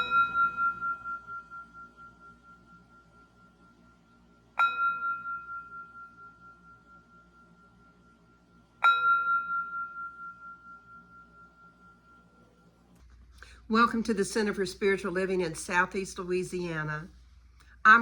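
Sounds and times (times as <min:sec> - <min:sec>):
singing bowl ringing: 0:00.0 - 0:13.0.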